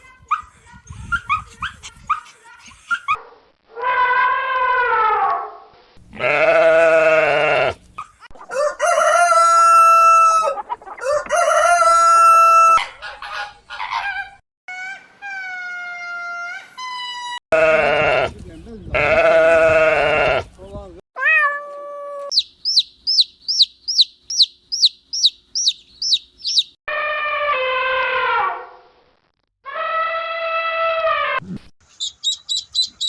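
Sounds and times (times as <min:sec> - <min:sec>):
rooster crowing: 0:08.5 - 0:13.0.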